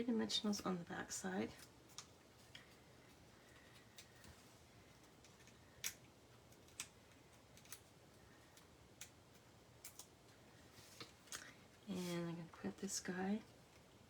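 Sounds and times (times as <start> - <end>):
small clicks and ticks: 1.5 - 10.4.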